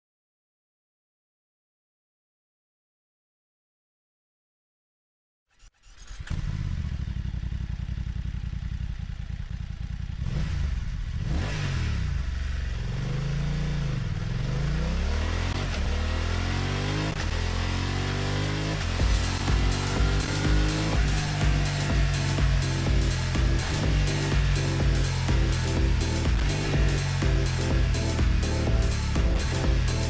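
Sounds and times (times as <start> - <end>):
motorcycle engine starting: 5.6 - 13.0, 19.0 - 30.0
motorcycle engine idling and revving: 5.7 - 30.0.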